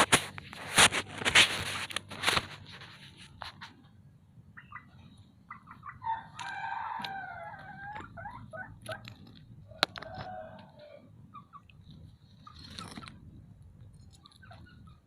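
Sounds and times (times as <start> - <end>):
chickens clucking: 2.4 - 15.0
rooster crowing: 6.0 - 8.0, 9.8 - 11.1.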